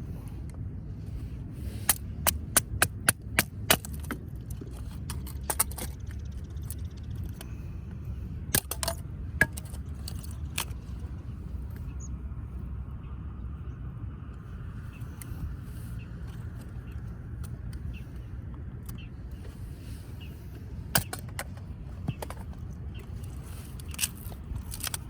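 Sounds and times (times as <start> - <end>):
steady low rumble: 0.0 - 25.0
sharp wood cracks: 1.8 - 7.6, 8.5 - 10.8, 20.9 - 22.5.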